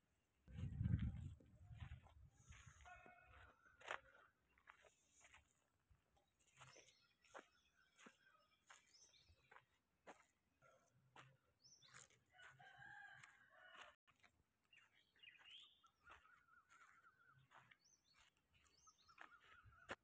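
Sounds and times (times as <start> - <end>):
faint birds chirping: 1.2 - 20.0
wavering bird calls: 15.3 - 20.0.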